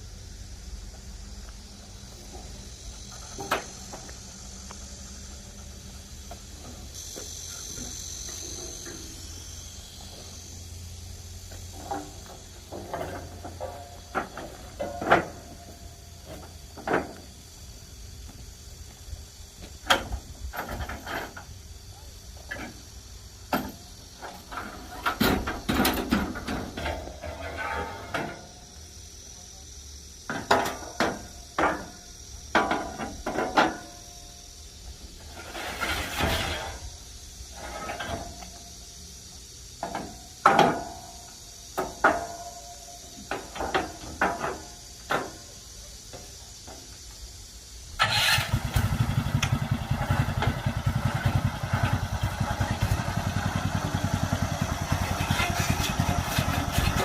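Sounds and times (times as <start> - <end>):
small engine starting and running: 48.0 - 57.0.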